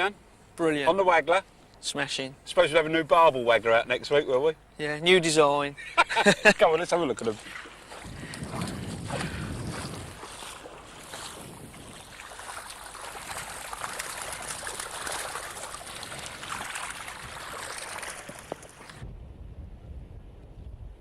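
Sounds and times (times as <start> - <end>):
water splashing and streaming: 7.0 - 19.0.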